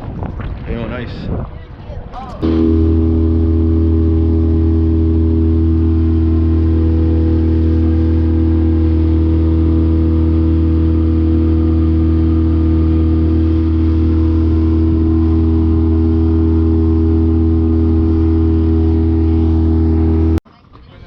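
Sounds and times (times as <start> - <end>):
outboard motor running: 2.4 - 20.4.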